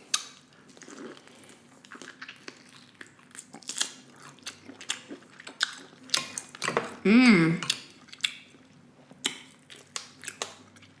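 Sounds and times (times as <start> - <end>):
wet chewing smacks: 9.2 - 11.0.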